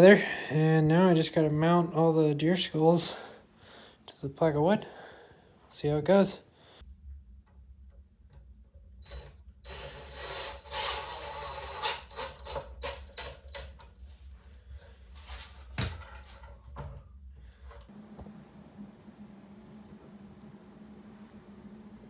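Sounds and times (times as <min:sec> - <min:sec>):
scraping and rubbing on wood: 0:09.7 - 0:17.0.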